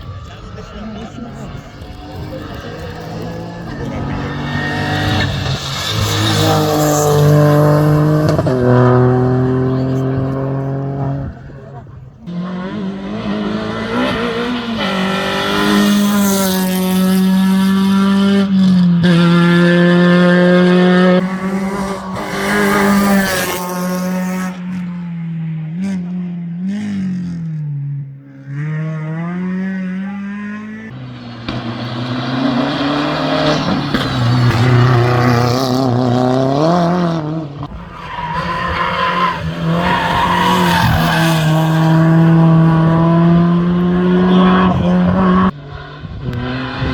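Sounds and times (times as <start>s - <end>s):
race car engine running hard: 0.0s - 17.9s, 20.2s - 24.9s.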